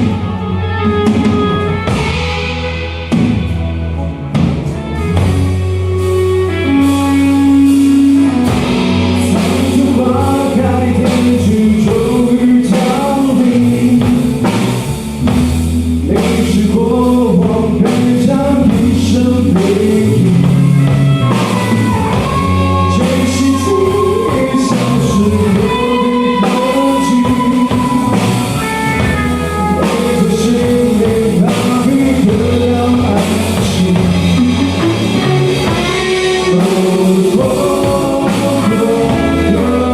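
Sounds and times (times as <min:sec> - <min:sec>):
rock band playing: 0:00.0 - 0:39.9
melodic line bending notes: 0:16.8 - 0:39.9.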